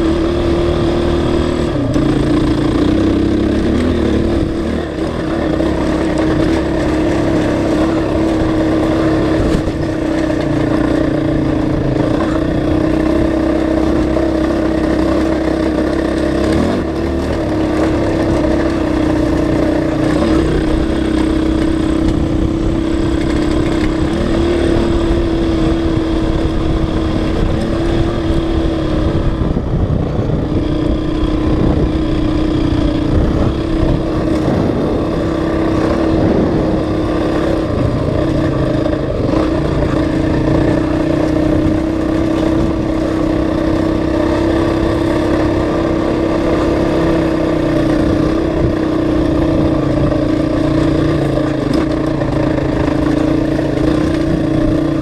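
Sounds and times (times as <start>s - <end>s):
dirt bike engine running: 0.0s - 55.0s.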